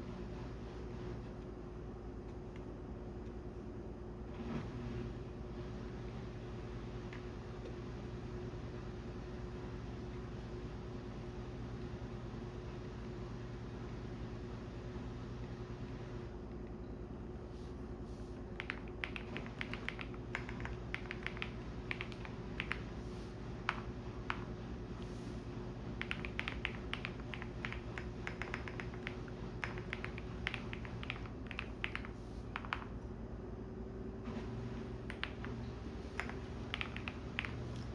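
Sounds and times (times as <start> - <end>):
washing machine drone: 0.0 - 37.9
computer keyboard typing: 18.5 - 24.6, 25.9 - 33.0, 35.0 - 37.9.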